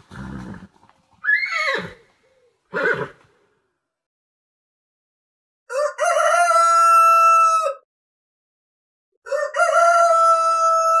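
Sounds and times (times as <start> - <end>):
rooster crowing: 5.7 - 7.8, 9.2 - 11.0.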